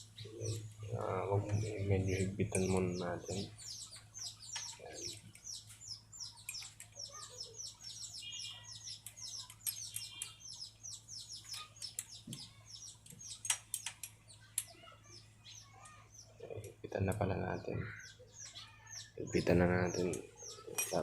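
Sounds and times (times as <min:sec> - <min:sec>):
small birds chirping: 0:00.0 - 0:21.0
sharp clicks: 0:11.5 - 0:14.8.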